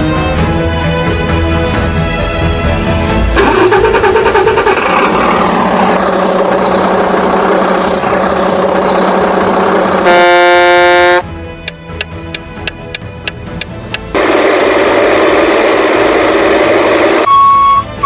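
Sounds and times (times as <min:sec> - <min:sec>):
vehicle running noise: 0:00.0 - 0:18.0
truck air horn: 0:09.8 - 0:11.3.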